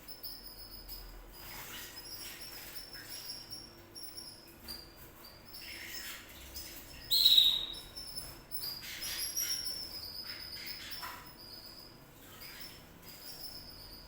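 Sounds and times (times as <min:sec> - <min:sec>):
canaries chirping and singing: 0:05.6 - 0:14.0.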